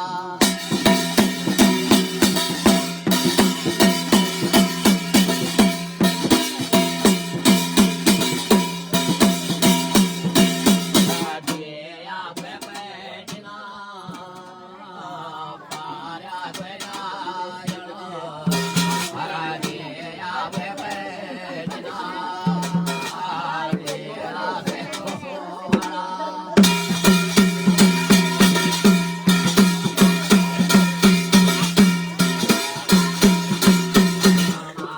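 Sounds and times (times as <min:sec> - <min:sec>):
person chanting a song: 0:00.0 - 0:34.9
drumming: 0:00.4 - 0:11.7, 0:15.7 - 0:34.9.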